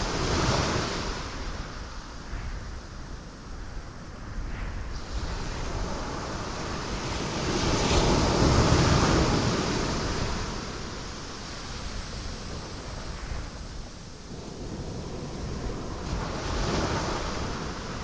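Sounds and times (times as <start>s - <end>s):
ocean waves crashing on rocks: 5.0s - 13.2s.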